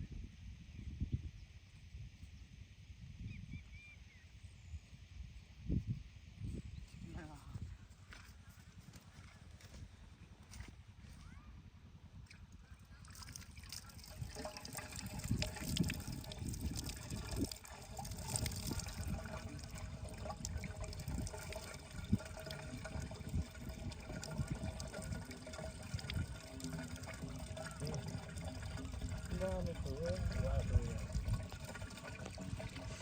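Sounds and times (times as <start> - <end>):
water splashing and trickling: 12.9 - 33.0.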